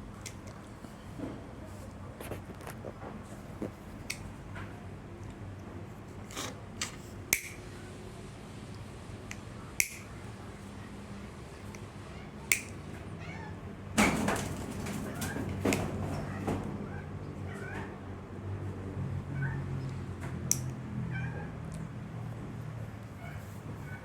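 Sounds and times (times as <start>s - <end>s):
clicks of wiring parts handled: 9.3s - 10.1s.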